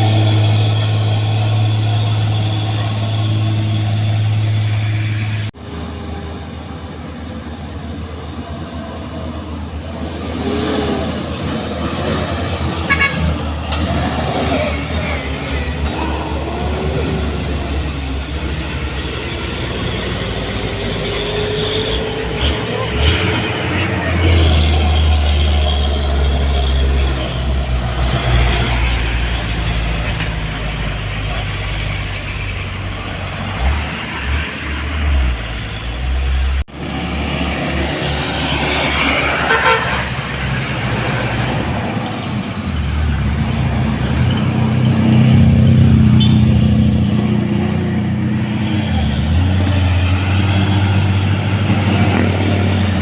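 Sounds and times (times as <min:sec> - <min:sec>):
truck engine running: 0:00.0 - 0:08.6
heavy truck engine rumbling: 0:00.0 - 0:53.0
high-pitched squeal: 0:00.0 - 0:53.0.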